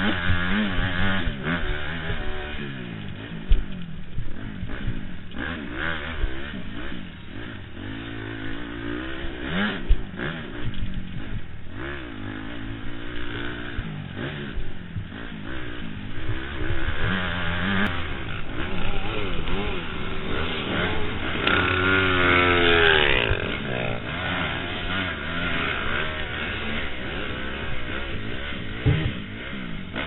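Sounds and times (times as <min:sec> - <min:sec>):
knocks and clatter from rough ground: 0:00.0 - 0:06.8, 0:28.7 - 0:30.0
motocross bike engine revving: 0:00.0 - 0:30.0.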